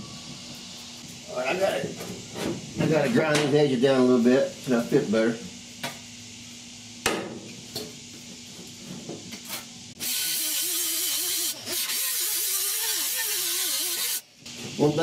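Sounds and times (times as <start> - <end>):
grinder grinding sheet metal: 10.0 - 14.2.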